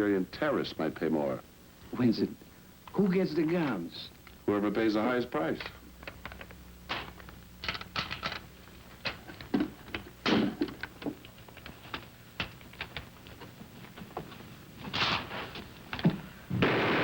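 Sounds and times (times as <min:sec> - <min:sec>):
sharp clicks and knocks: 0:05.6 - 0:16.2
rustling scrapes: 0:13.4 - 0:15.8.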